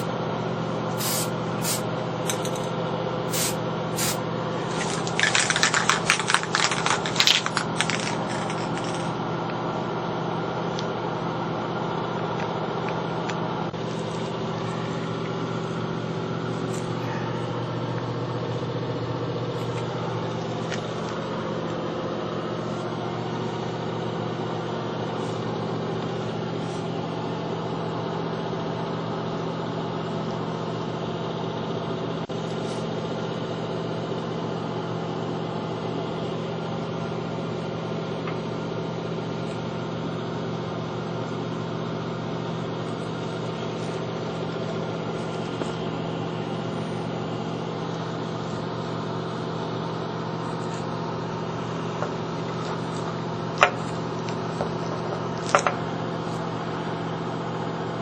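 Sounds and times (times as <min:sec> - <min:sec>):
motor humming: 0:00.7 - 0:09.6.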